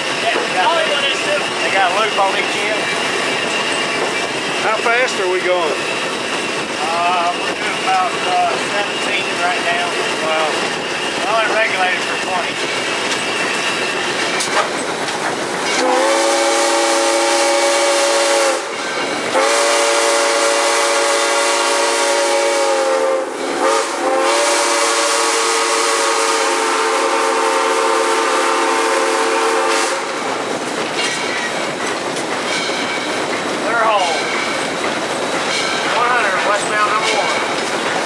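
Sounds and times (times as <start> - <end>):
train running on track: 0.0 - 38.0
steam whistle blasts: 15.8 - 30.2.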